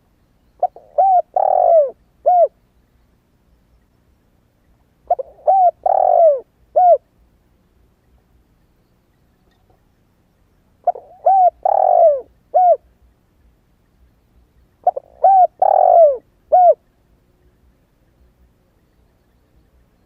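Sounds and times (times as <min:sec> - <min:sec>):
dove cooing: 0:00.6 - 0:02.6, 0:05.0 - 0:07.1, 0:10.8 - 0:12.9, 0:14.8 - 0:16.9.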